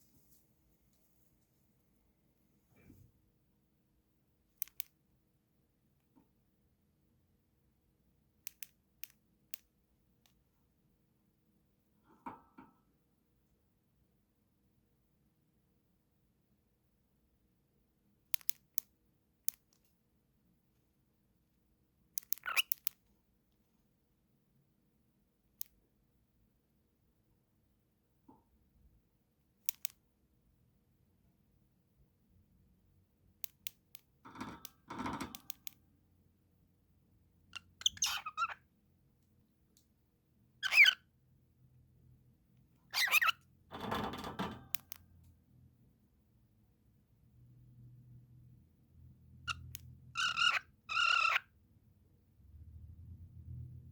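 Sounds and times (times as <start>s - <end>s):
bird squeak rising: 37.6s - 38.6s, 40.6s - 41.0s, 43.0s - 43.4s
cockatiel squawking: 37.6s - 38.6s, 40.6s - 41.0s, 49.5s - 51.5s.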